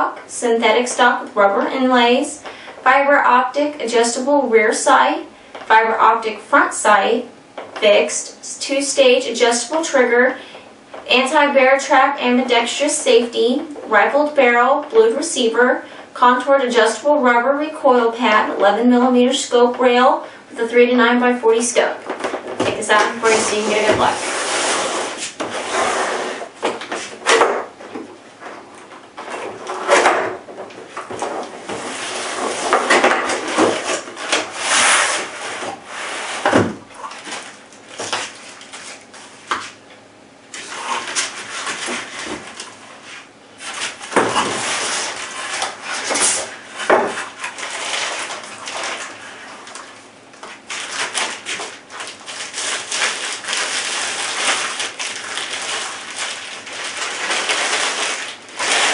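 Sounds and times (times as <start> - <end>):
cardboard and plastic packaging rustling: 22.0 - 39.9, 40.5 - 58.9.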